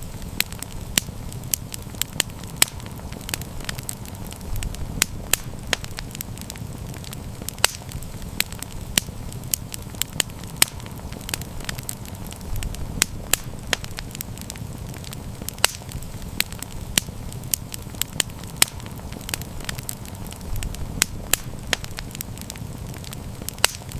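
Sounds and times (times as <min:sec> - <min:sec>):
campfire crackles and pops: 0:00.0 - 0:23.9
low rumble of flames: 0:00.0 - 0:23.9.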